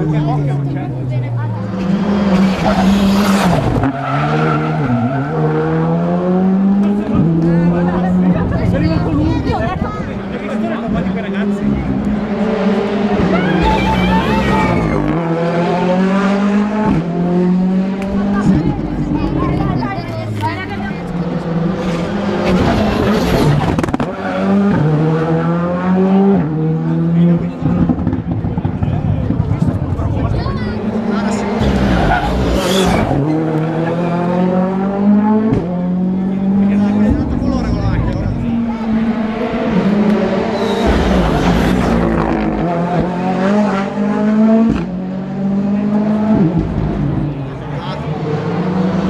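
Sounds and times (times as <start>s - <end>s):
rally car engine revving: 0.0s - 49.0s.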